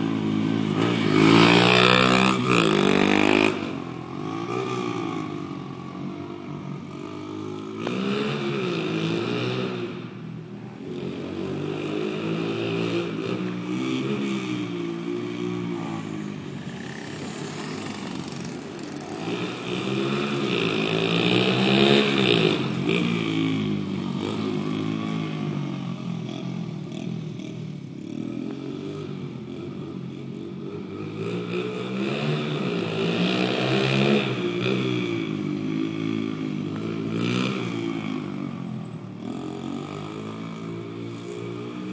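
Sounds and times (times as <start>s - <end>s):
pit bike engine revving: 0.0s - 10.0s, 11.0s - 30.0s.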